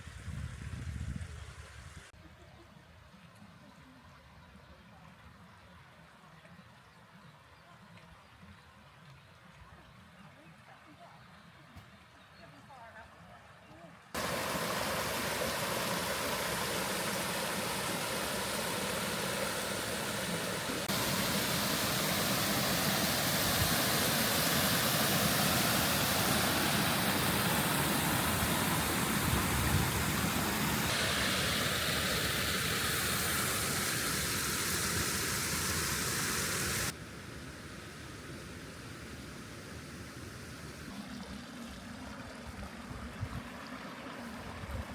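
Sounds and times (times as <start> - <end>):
waterfall rushing water: 14.2 - 37.0.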